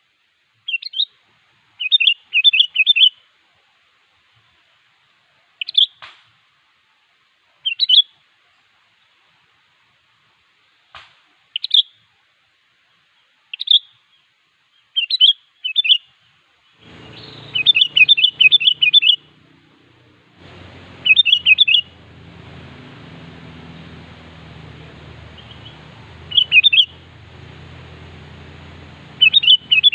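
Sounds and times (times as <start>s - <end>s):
bird chirping: 16.8s - 29.9s
low background hum: 16.8s - 29.9s
rapidly repeated bird notes: 16.8s - 29.9s.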